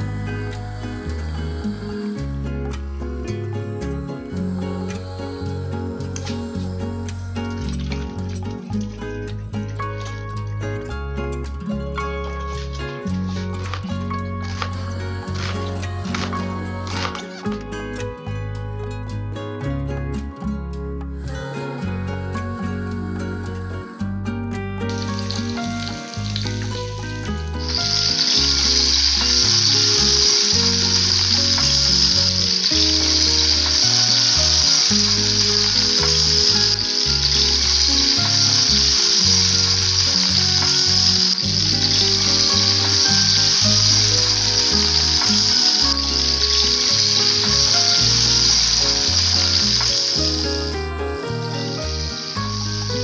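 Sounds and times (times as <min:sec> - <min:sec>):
background music with bass line: 0:00.0 - 0:53.0
shrimp sizzling in hot oil: 0:12.0 - 0:17.6, 0:24.9 - 0:53.0.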